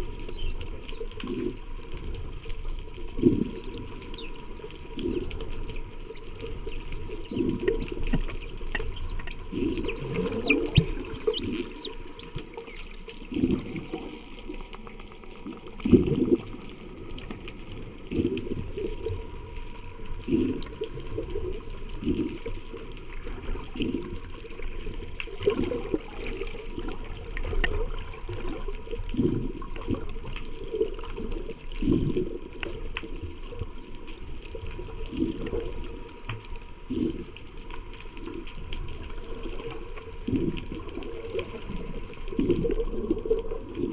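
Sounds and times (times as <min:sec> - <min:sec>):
dolphins whistling: 0:00.0 - 0:01.0, 0:03.1 - 0:14.0.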